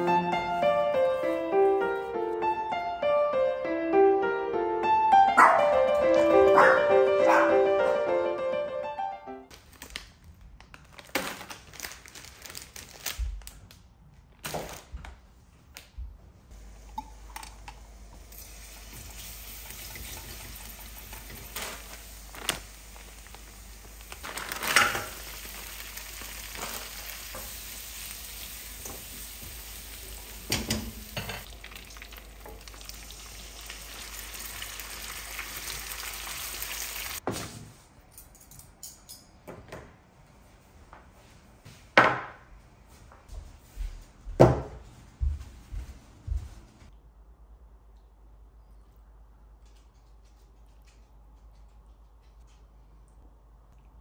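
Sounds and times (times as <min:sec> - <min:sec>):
food sizzling in a frying pan: 0:18.2 - 0:24.0, 0:24.6 - 0:37.2.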